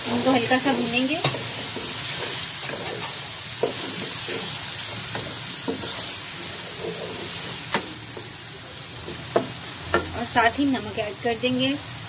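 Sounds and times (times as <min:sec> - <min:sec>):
vegetables sizzling in hot oil: 0:00.0 - 0:12.0
wooden spatula scraping and knocking pan: 0:00.1 - 0:08.4.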